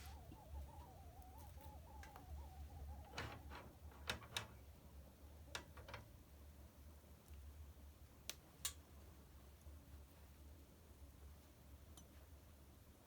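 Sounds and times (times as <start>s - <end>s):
wood fire crackling: 0.0s - 2.3s
faint wavering whistle: 0.0s - 3.8s.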